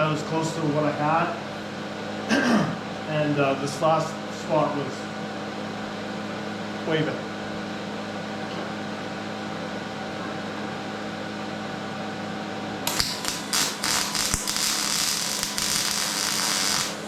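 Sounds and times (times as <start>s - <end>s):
electrical hum: 12.6s - 17.0s
welder arc crackling: 12.9s - 17.0s.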